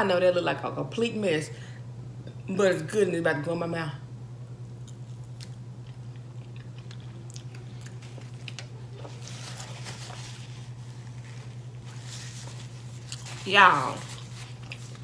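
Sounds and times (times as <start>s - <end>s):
steady low hum: 0.0s - 15.0s
person chewing chicken: 4.7s - 11.9s, 14.2s - 15.0s
paper napkin rustling: 8.0s - 15.0s.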